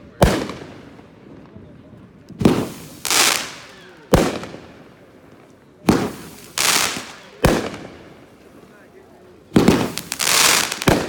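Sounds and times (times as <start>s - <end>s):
firework bangs: 0.1s - 8.7s, 9.4s - 11.0s
firework hissing crackle: 2.4s - 5.1s, 5.8s - 8.8s, 9.4s - 11.0s.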